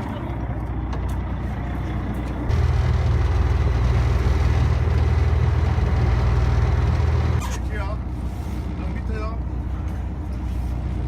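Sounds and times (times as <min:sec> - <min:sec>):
boat engine revving: 0:02.5 - 0:07.8.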